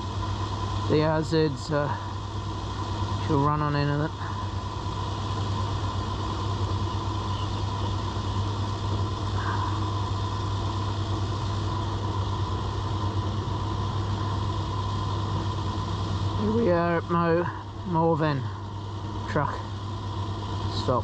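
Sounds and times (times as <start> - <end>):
motorcycle engine running: 2.7 - 19.5.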